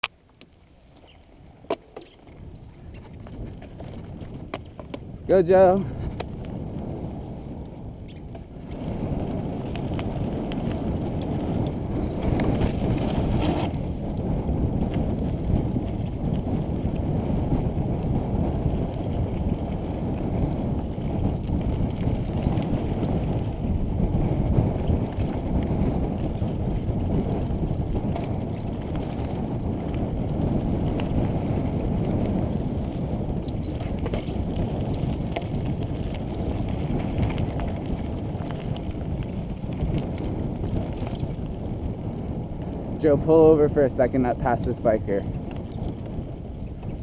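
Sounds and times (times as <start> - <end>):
bike tyres rolling over dirt: 0.1 - 47.0
wind on microphone: 0.8 - 47.0.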